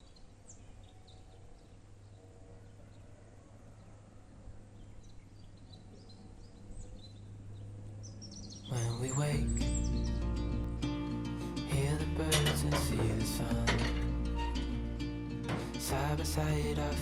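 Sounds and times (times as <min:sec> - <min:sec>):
birds chirping: 0:00.0 - 0:17.0
low hum: 0:06.5 - 0:17.0.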